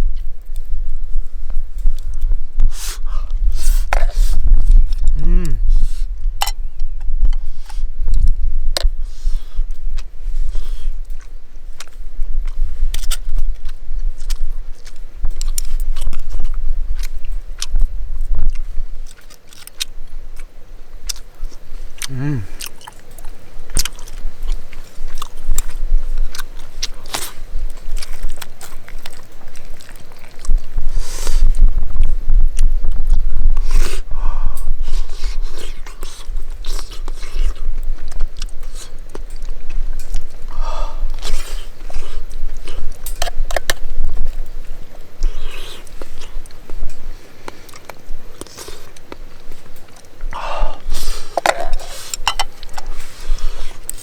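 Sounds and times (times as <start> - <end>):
chewing: 0.0 - 54.0
steady low rumble: 0.0 - 54.0
utensil clinking on metal tin: 51.4 - 52.8.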